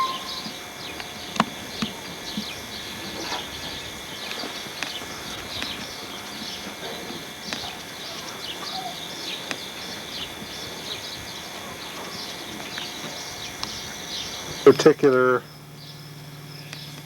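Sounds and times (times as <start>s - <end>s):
outdoor hiss: 0.0s - 17.0s
small birds chirping: 0.0s - 17.0s
sharp clicks: 0.3s - 2.5s, 7.4s - 7.8s, 9.3s - 9.7s, 12.6s - 14.2s.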